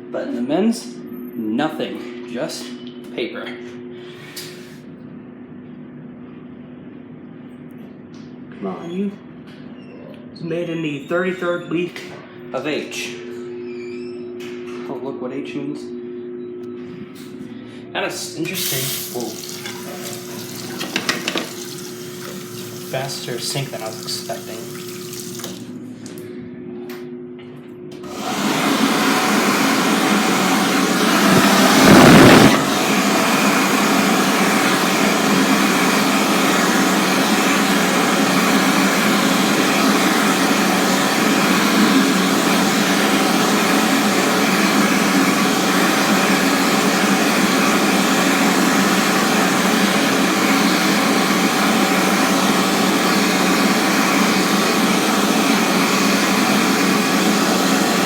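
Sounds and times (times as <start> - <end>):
electric hand dryer running: 18.5 - 25.7, 28.0 - 58.0.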